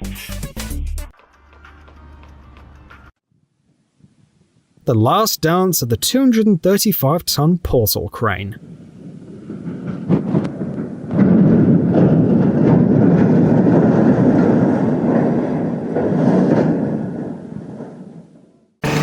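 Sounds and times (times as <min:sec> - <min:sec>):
heavy steel structure rumbling: 0:08.6 - 0:19.0.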